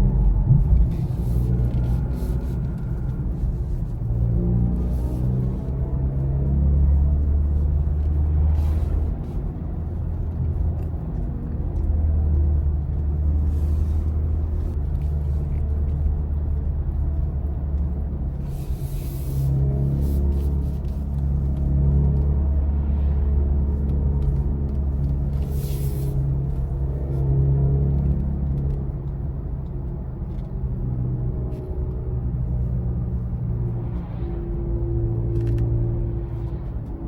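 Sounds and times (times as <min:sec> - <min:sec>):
faint low drone: 0:00.0 - 0:09.1
road and tyre rumble: 0:00.0 - 0:37.0.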